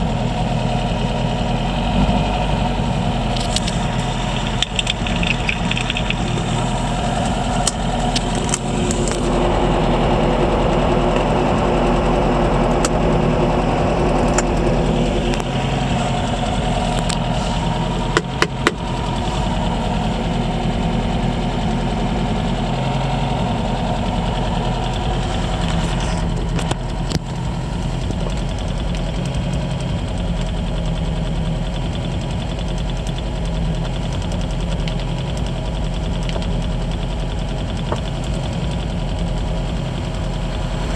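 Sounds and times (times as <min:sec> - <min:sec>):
car engine idling: 0:00.0 - 0:40.9
sharp clicks: 0:03.4 - 0:09.5.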